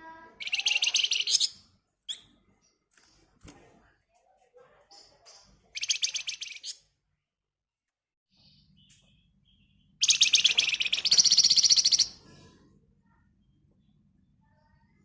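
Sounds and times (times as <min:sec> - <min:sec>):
songbird singing trills: 0:00.4 - 0:02.3, 0:05.7 - 0:06.8, 0:08.5 - 0:12.2.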